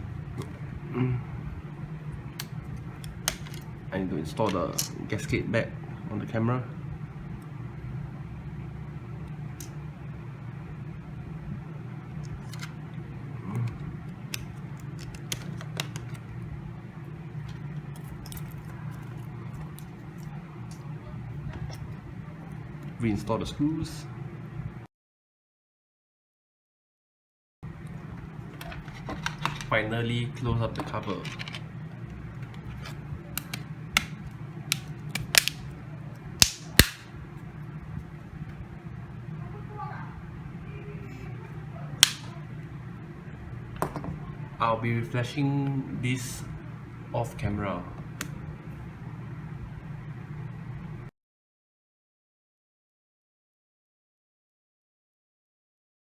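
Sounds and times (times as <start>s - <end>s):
steady low hum: 0.0s - 24.9s, 27.6s - 51.1s
phone cover clips snapping: 33.3s - 35.6s, 36.4s - 37.0s, 42.0s - 42.3s.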